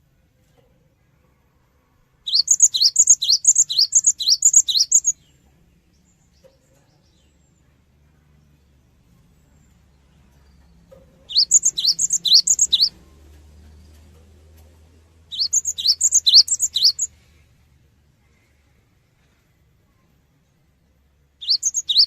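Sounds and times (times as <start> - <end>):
bird whistling rising notes: 2.3 - 5.1, 11.3 - 13.0, 15.3 - 17.1, 21.4 - 22.0.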